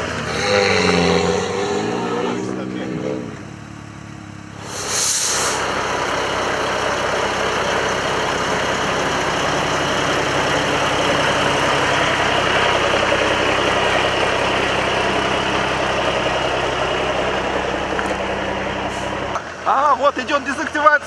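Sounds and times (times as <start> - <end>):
vehicle engine running: 0.0 - 21.0
short hiss: 4.6 - 5.9.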